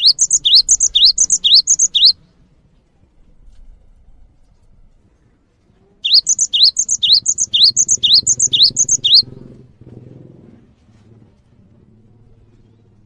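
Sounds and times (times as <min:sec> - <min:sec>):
songbird singing: 0:00.0 - 0:02.3, 0:06.0 - 0:09.6.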